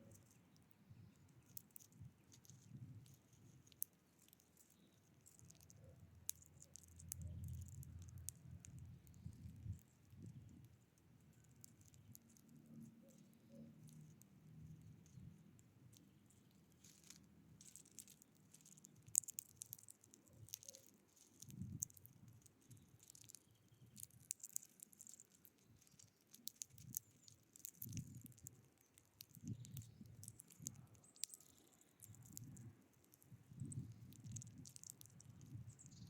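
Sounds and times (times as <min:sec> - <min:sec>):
birds pecking at feeder: 0:00.0 - 0:36.0
soft low rumbles: 0:05.2 - 0:19.0.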